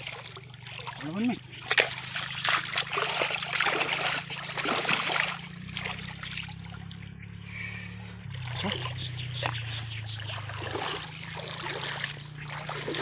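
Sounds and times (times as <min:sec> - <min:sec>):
low steady hum: 0:00.0 - 0:13.0
muddy water splashing: 0:00.0 - 0:13.0.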